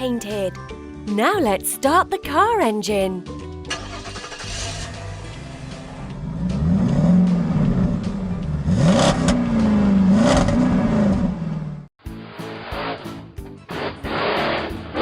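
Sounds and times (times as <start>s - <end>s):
upbeat guitar music: 0.0s - 5.7s
cartoon car engine revving: 3.7s - 11.8s.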